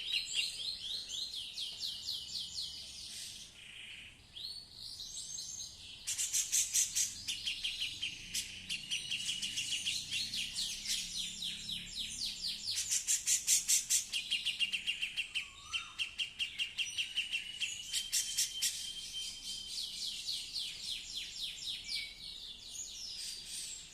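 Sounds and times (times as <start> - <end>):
bulbul singing: 6.0 - 22.3.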